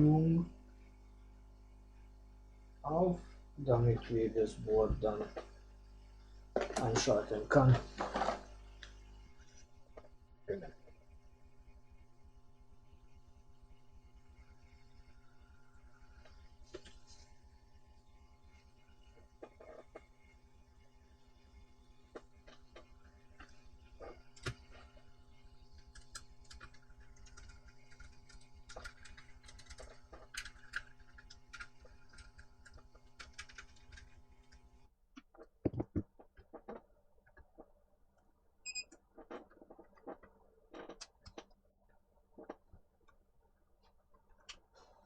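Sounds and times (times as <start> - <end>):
steady electrical hum: 0.0 - 35.0
small laptop parts clicking: 25.8 - 34.6.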